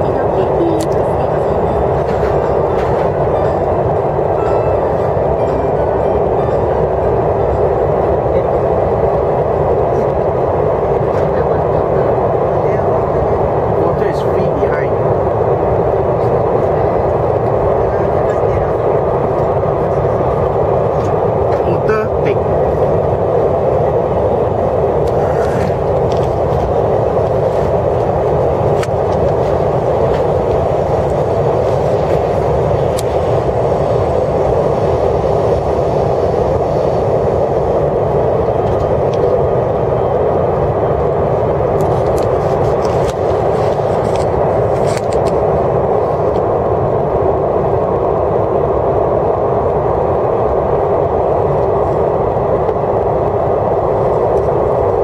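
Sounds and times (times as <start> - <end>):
train cabin noise: 0.0 - 55.0.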